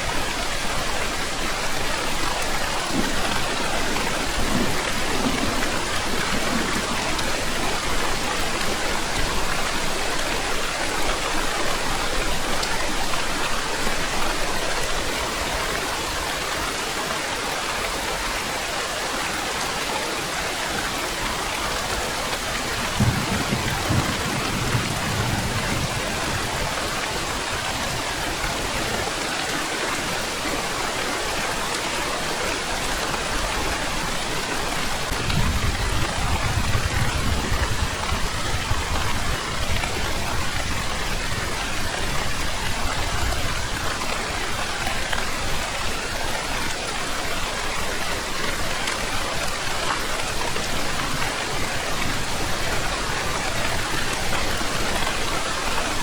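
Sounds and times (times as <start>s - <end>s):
heavy rain falling: 0.0s - 56.0s
thunder rumbling: 0.2s - 10.2s, 22.5s - 29.2s, 33.3s - 44.1s.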